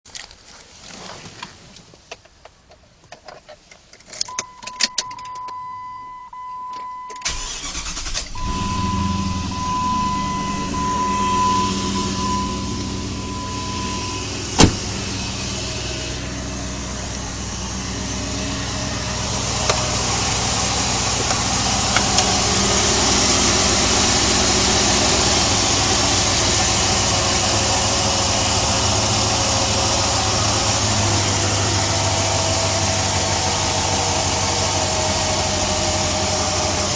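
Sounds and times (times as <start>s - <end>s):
car engine idling: 7.2s - 36.9s
electronic warning tone: 8.3s - 14.3s.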